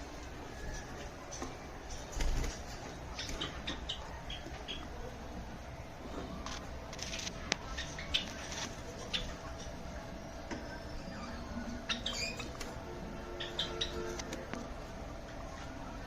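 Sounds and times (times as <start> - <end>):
faint hum: 0.0 - 16.0
sparrows chirping and squeaking: 0.6 - 5.0, 7.0 - 9.9, 10.6 - 14.4.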